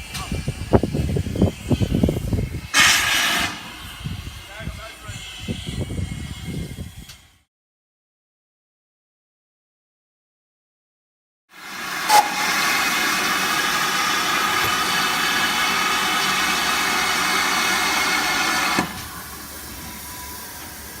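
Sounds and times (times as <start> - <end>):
steam hissing: 0.0 - 7.4, 11.6 - 21.0.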